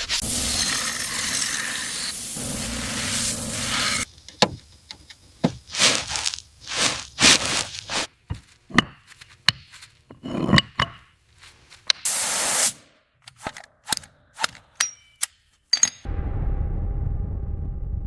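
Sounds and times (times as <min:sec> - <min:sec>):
burst of hiss: 0:00.2 - 0:04.1, 0:12.0 - 0:12.9.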